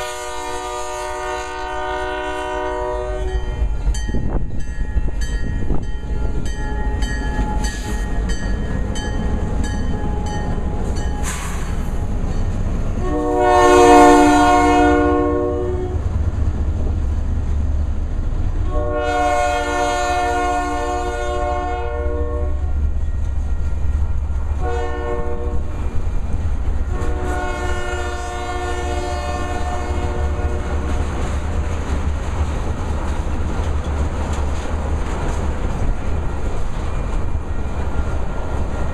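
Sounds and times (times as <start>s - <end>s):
locomotive air horn blasts: 0.0s - 3.8s, 13.0s - 16.1s, 18.6s - 22.8s, 24.6s - 25.8s, 26.8s - 31.0s
low rumble of train: 0.0s - 38.9s.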